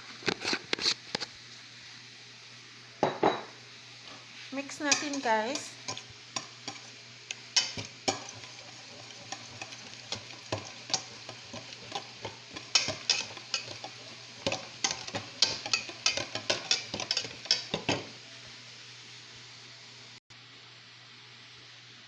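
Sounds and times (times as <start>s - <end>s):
utensil stirring in a bowl: 4.1s - 18.1s.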